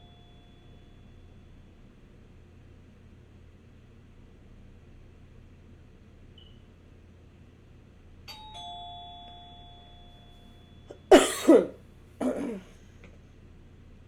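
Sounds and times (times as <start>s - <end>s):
two-note doorbell chime: 0.0s - 1.5s, 8.3s - 11.1s.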